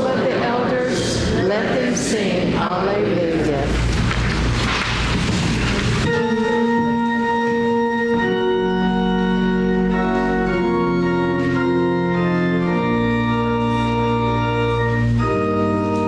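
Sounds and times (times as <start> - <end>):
church organ chords: 5.4 - 16.0
deep organ pedal bass note: 5.5 - 16.0.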